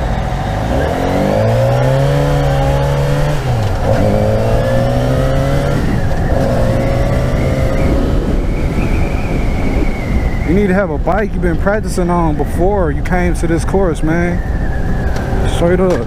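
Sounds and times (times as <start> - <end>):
motorcycle engine pulling under throttle: 0.0 - 10.4
wind rushing: 0.0 - 16.0.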